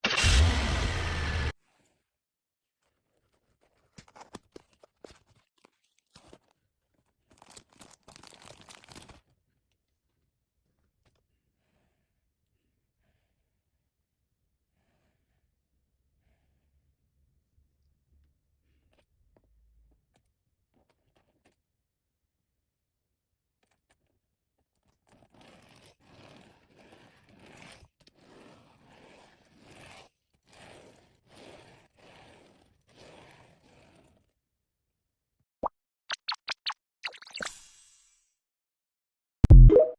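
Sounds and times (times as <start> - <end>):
toy packaging clicking and crinkling: 7.3 - 9.2
packaging rustling: 7.4 - 9.2
plastic toy truck scraping: 24.8 - 34.4.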